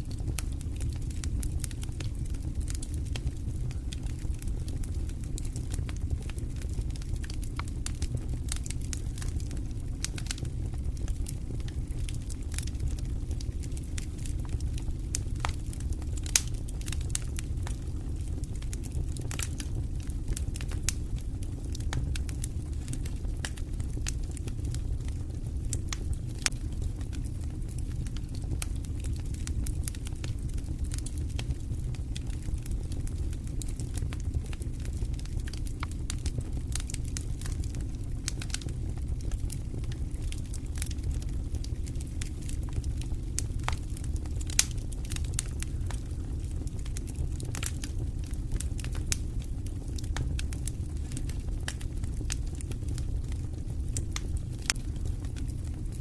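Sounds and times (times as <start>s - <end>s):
fire crackling in fireplace: 0.0s - 56.0s.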